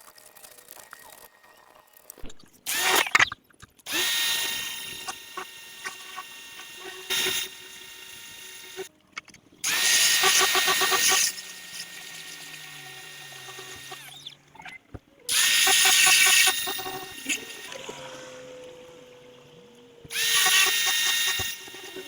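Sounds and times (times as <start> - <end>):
pressure washer machine whine: 3.9 - 8.9, 9.6 - 14.2, 15.3 - 22.0.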